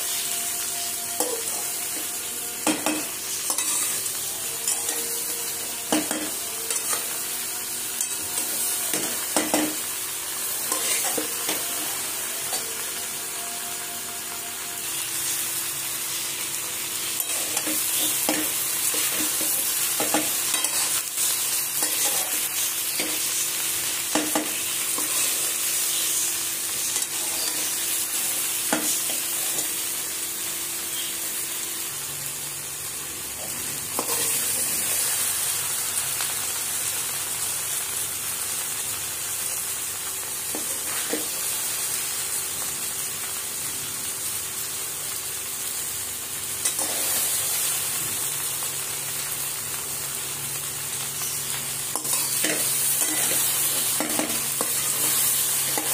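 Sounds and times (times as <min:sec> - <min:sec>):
vegetables sizzling in oil: 0:00.0 - 0:55.9
spatula clicking and scraping pan: 0:51.9 - 0:55.9.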